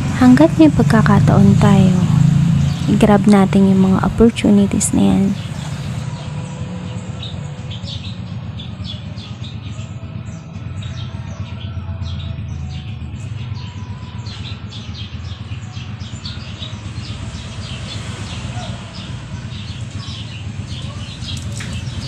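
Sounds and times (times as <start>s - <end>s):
steady low rumble: 0.0s - 22.0s
small birds chirping: 0.2s - 22.0s.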